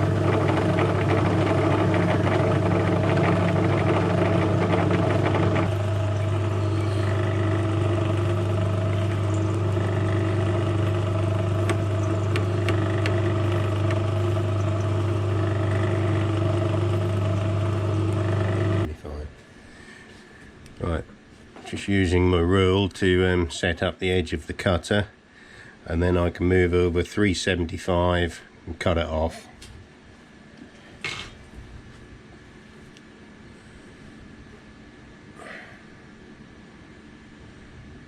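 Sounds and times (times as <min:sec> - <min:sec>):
harsh metal cutting noise: 0:00.0 - 0:18.9
metal lathe motor hum: 0:00.0 - 0:18.9.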